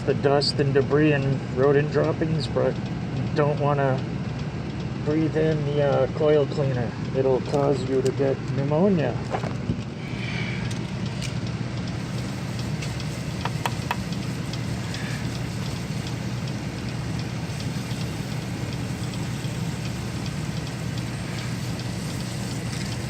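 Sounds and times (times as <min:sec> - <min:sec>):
steady low hum: 0:00.0 - 0:23.0
water spray pattering and dripping: 0:10.2 - 0:23.0.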